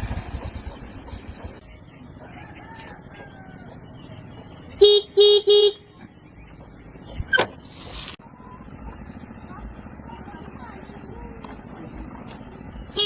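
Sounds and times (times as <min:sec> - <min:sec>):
vehicle horn beeping: 0:04.8 - 0:05.8
brief hiss of noise: 0:07.6 - 0:08.2.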